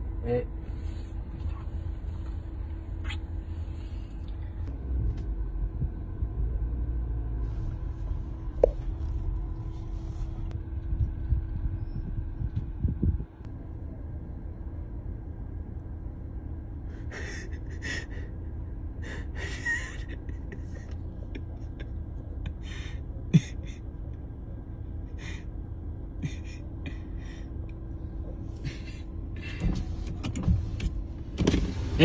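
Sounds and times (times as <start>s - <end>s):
rustling near microphone: 7.4s - 11.2s
car idling: 13.4s - 32.0s.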